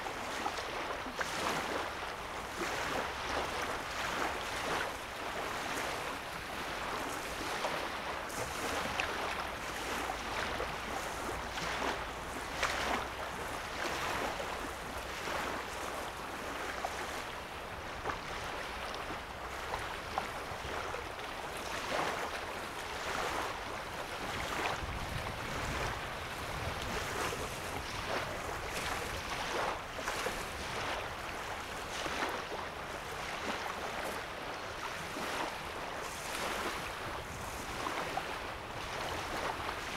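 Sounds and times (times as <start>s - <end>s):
waves lapping on sandy shore: 0.0s - 39.9s.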